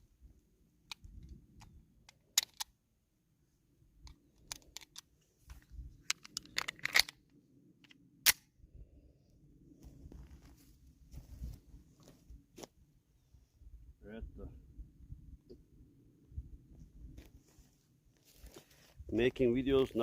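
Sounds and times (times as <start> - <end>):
pistol metal clicks: 0.9 - 2.7, 6.1 - 7.2.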